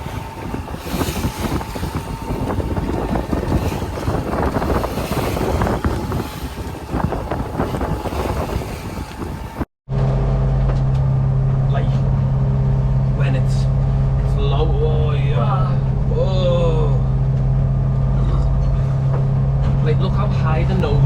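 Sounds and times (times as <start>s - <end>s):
water noise: 0.0s - 9.7s
wind buffeting microphone: 0.0s - 9.7s
boat engine: 0.0s - 21.0s.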